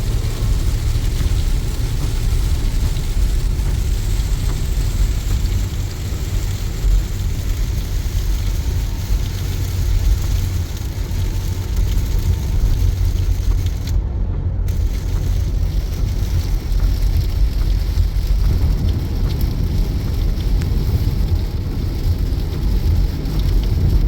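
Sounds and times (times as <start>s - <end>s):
rain and wet tyres hissing: 0.0s - 24.0s
road rumble: 0.0s - 24.0s.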